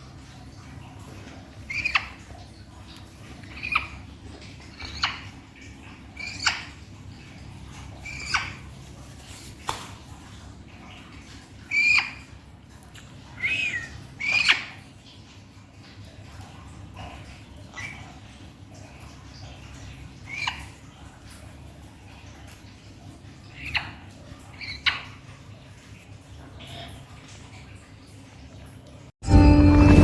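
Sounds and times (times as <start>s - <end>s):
parrot squawking: 1.7s - 2.2s, 3.4s - 4.0s, 6.2s - 6.8s, 8.0s - 8.6s, 13.4s - 14.8s.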